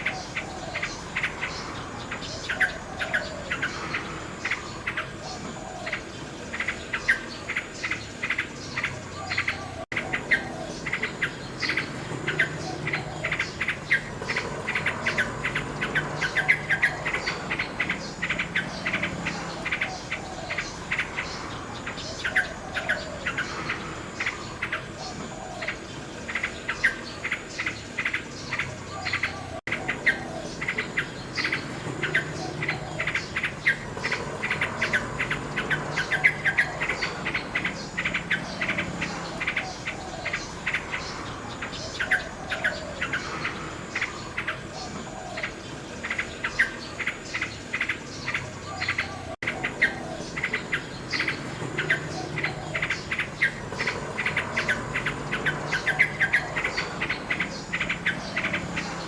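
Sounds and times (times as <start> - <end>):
insects chirring: 0.0 - 59.0
nightingale singing: 0.0 - 59.0.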